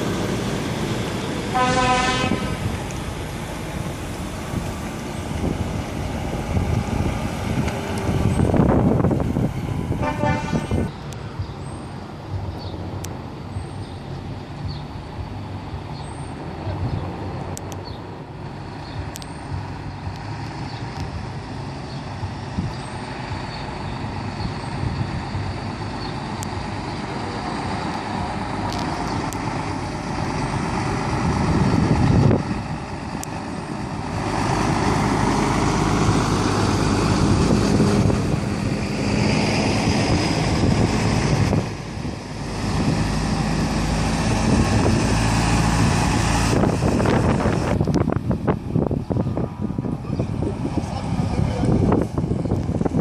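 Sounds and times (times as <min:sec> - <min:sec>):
diesel lorries driving past: 0:00.0 - 0:53.0
truck horn blast: 0:01.5 - 0:02.7, 0:09.9 - 0:10.9.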